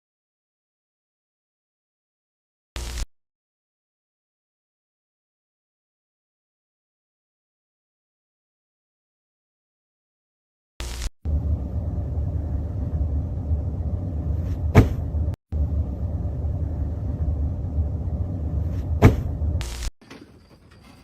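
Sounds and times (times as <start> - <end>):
steady low rumble: 10.8 - 19.9.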